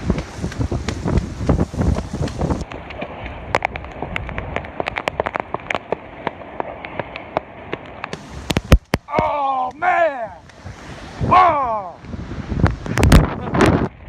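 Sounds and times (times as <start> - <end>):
rain ticking on hard surface: 0.0 - 11.1
steady rain wash: 0.0 - 14.0.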